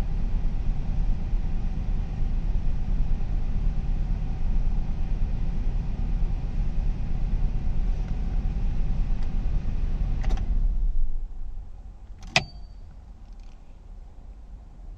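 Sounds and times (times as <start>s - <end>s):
sharp metallic click: 12.2s - 13.6s.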